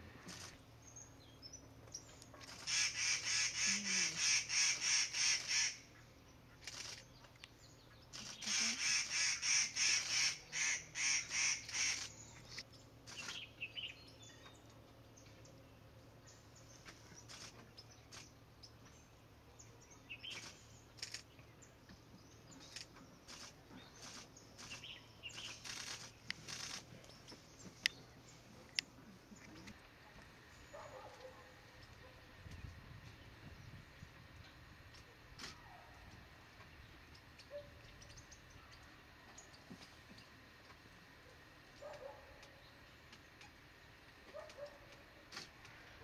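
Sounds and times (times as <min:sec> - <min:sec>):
harsh bird calls: 0:02.4 - 0:07.0, 0:08.1 - 0:13.9.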